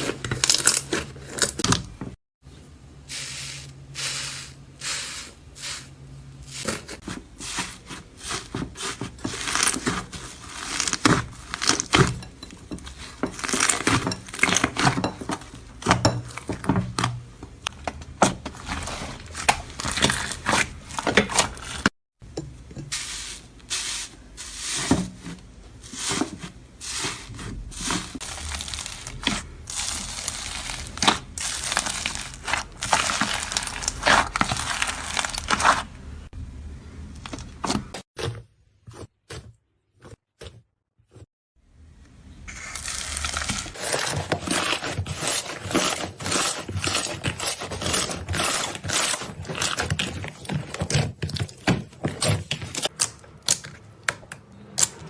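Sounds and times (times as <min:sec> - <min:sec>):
slime crackling and popping: 0:28.2 - 0:35.8, 0:42.5 - 0:50.0.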